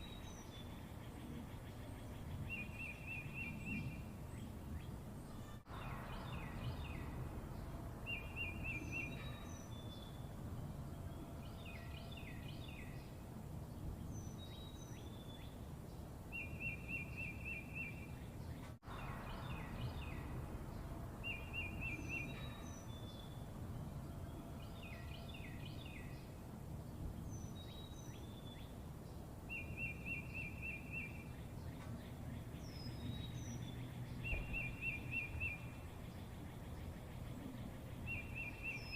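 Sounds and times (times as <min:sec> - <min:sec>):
birds singing buzzy trills and chirps: 0:00.0 - 0:38.9
low background rumble: 0:03.3 - 0:16.3, 0:18.1 - 0:29.5.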